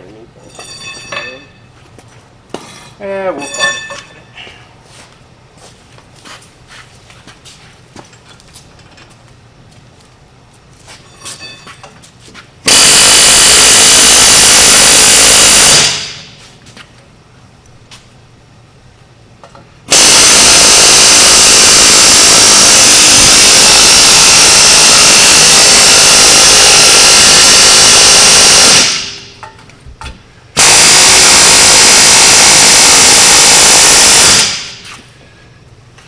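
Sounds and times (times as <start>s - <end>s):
high-pitched power tool running: 12.7s - 16.4s, 19.9s - 29.4s, 30.6s - 34.9s.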